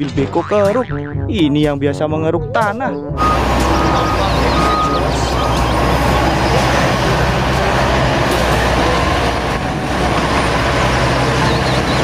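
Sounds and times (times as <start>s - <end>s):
diesel engines running: 3.2s - 12.0s.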